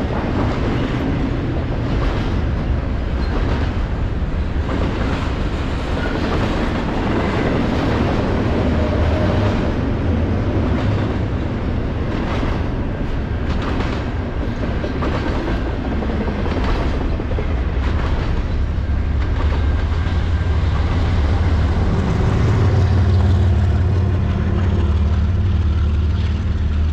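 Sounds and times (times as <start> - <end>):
train rolling rumble: 0.0 - 26.9
low engine drone: 18.7 - 26.9.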